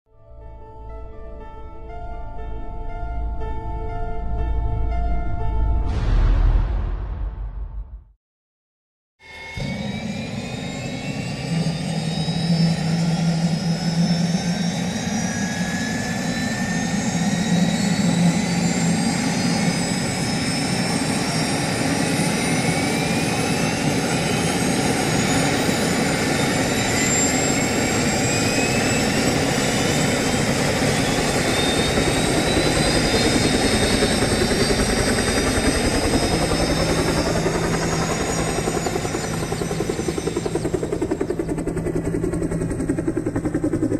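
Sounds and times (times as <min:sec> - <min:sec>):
helicopter turbine whine: 0:09.2 - 0:43.9.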